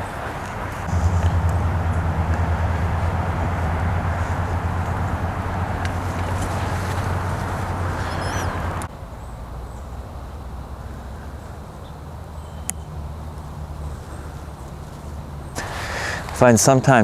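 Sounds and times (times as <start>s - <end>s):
rushing noise: 0.0s - 9.0s
distant road traffic rumble: 0.0s - 17.0s
faint bird chirps: 6.2s - 10.0s, 11.1s - 13.0s.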